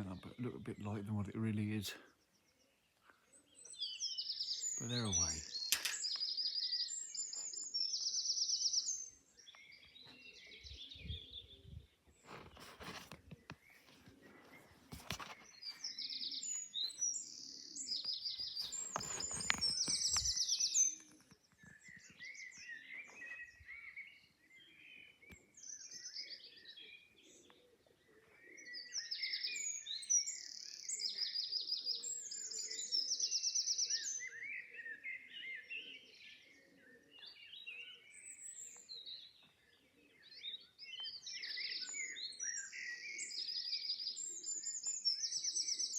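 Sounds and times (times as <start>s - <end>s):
songbirds chirping and trilling: 0.0s - 45.9s
rustling noise: 12.1s - 15.9s, 18.4s - 20.5s.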